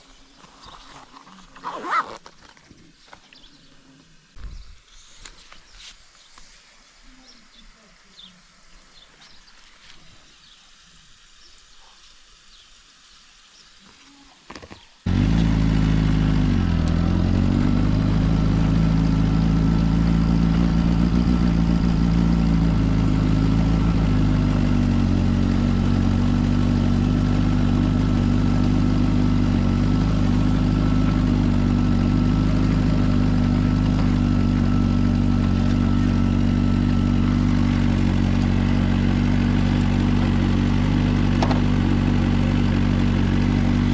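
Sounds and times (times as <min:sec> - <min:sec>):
engine revving: 0:15.1 - 0:43.9
motorcycle engine starting and idling: 0:15.1 - 0:43.9.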